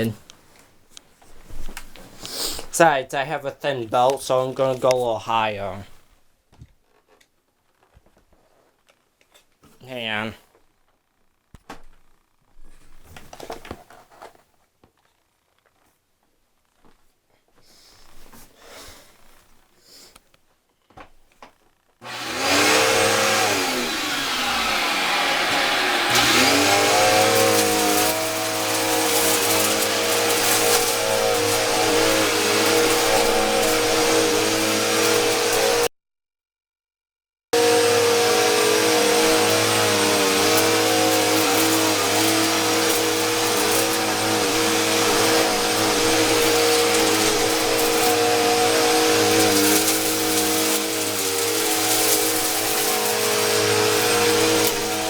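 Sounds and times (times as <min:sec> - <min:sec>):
vacuum cleaner motor whining: 0:22.0 - 0:35.9, 0:37.6 - 0:55.0.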